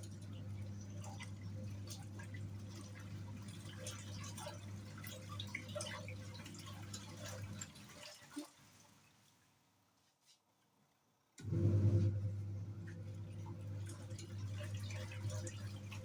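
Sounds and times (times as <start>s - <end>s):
washing machine motor humming: 0.0s - 8.0s, 11.4s - 16.0s
water splashing and dripping: 0.0s - 9.2s, 12.8s - 16.0s.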